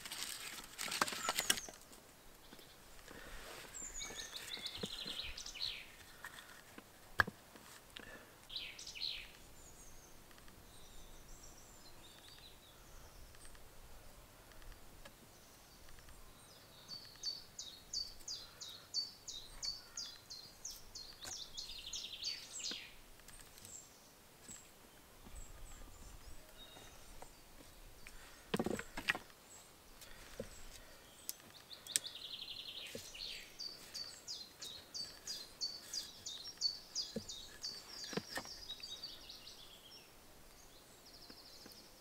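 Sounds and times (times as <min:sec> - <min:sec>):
birds chirping: 0:00.0 - 0:07.4, 0:08.0 - 0:42.0.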